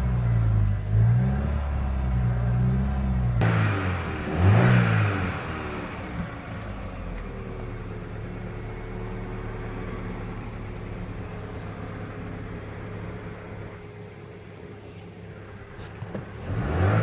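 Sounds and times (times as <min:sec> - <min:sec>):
car engine idling after rev: 0:03.4 - 0:16.5.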